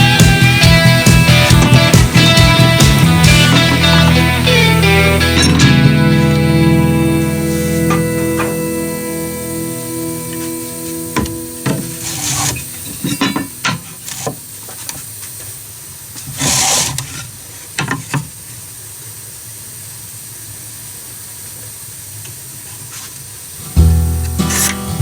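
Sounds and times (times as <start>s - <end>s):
rain hissing: 0.0s - 25.0s
short hissing burst: 0.4s - 13.2s, 13.8s - 17.8s.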